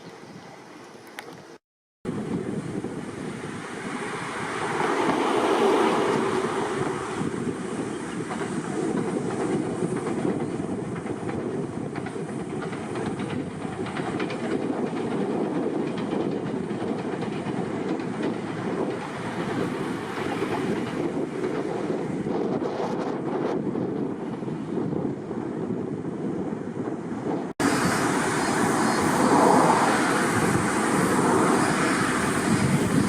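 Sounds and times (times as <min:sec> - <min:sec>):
train wheels clattering: 0:04.7 - 0:22.1.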